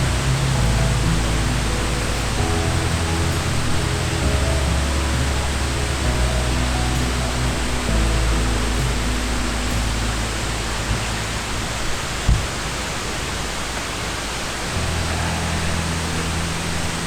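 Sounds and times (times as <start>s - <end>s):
soft background music: 0.0s - 12.2s
steady hiss: 0.0s - 17.0s
dull thump: 12.3s - 12.6s.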